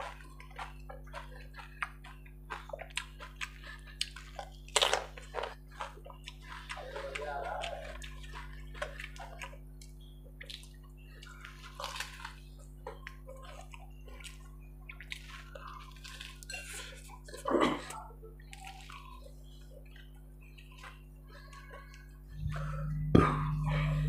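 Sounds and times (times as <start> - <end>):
man chewing food: 0.0 - 24.0
steady low hum: 0.0 - 24.0
wet mouth sounds: 20.8 - 24.0.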